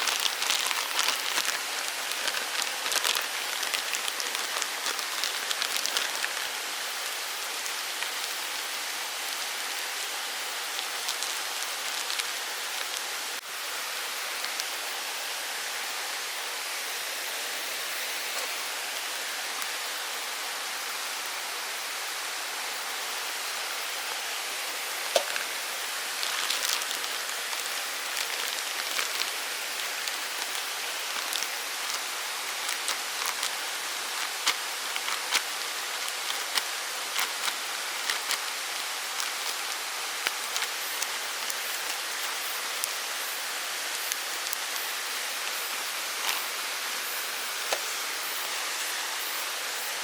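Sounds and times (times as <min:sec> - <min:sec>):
sharp clicks and crackles: 0:00.0 - 0:06.5, 0:26.2 - 0:43.0
forest stream rushing: 0:00.0 - 0:50.0.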